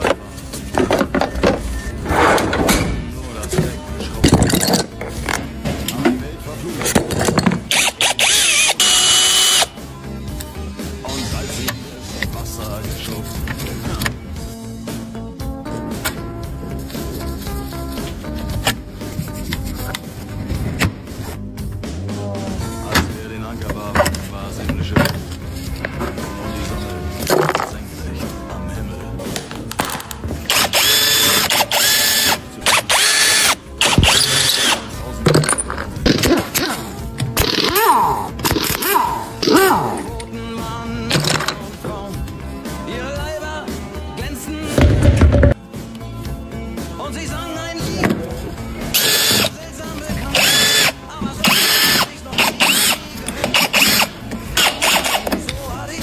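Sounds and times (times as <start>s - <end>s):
power tool motor running: 7.7s - 9.8s, 30.5s - 34.9s, 49.0s - 49.5s, 50.3s - 55.4s.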